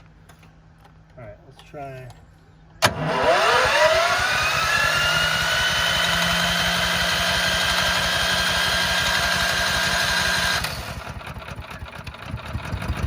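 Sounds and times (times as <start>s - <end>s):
small gasoline engine starting: 2.8s - 13.0s.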